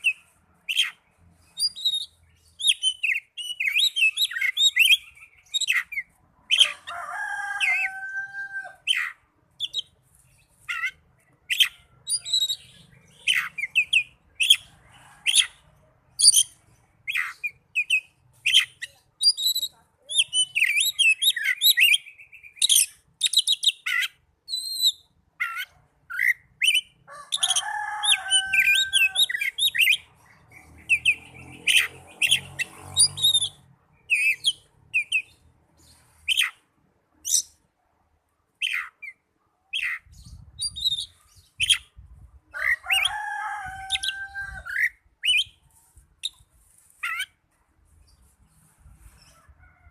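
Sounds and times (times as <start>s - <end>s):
bird whistles and chirps: 0.0s - 6.0s, 39.8s - 41.9s, 44.7s - 45.6s.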